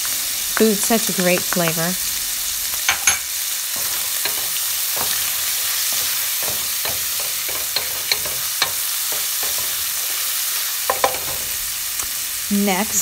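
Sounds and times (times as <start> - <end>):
food sizzling in oil: 0.0 - 13.0
wooden spoon scraping pan: 2.9 - 11.6.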